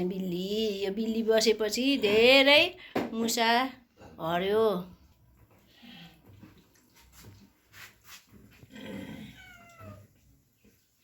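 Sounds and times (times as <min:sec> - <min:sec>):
cat meowing: 0:09.1 - 0:10.2.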